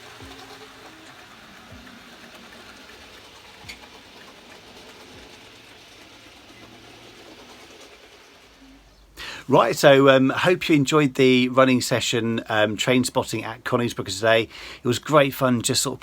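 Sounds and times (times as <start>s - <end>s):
model train whirring on track: 0.0s - 8.9s.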